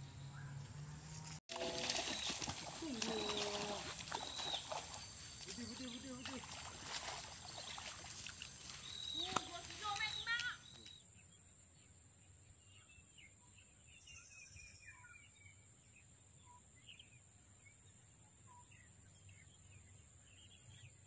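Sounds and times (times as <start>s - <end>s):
bird chirps: 2.0s - 6.5s, 8.7s - 11.3s.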